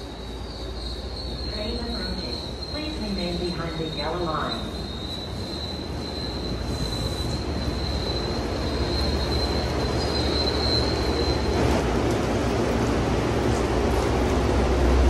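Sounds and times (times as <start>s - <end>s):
high wheel squeal: 0.0s - 11.6s
train wheels rumbling: 0.0s - 15.0s.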